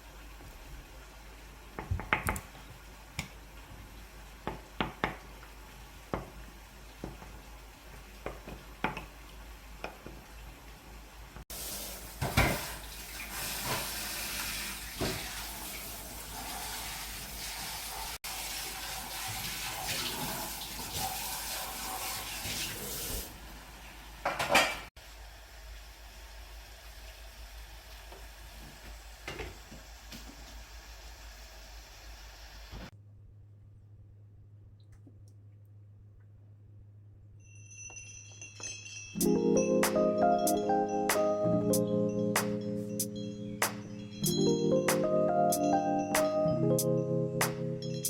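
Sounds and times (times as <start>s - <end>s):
dishes and utensils clattering: 12.2s - 12.8s, 24.2s - 24.9s.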